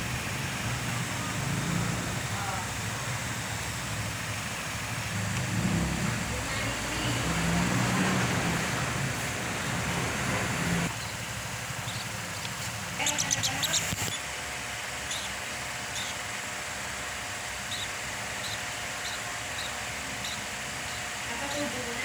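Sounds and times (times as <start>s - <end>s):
steady background hiss: 0.0s - 22.0s
young bird cheeping: 10.8s - 14.3s, 15.0s - 16.3s, 17.6s - 21.7s.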